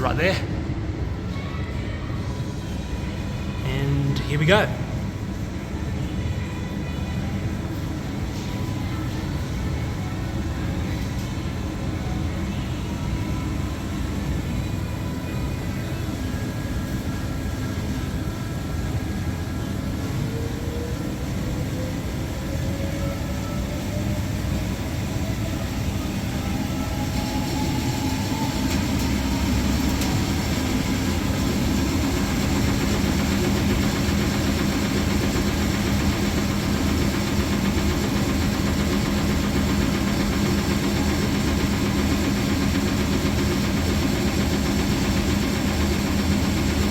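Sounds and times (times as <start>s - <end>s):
washing machine motor whining: 20.2s - 46.9s.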